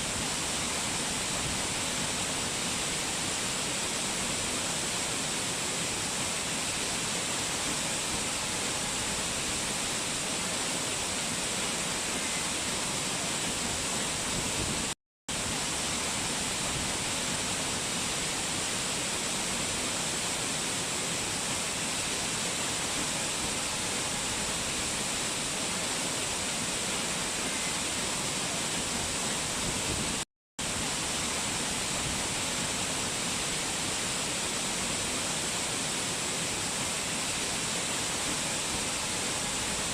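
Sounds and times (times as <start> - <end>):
mountain water rushing: 0.0 - 39.9.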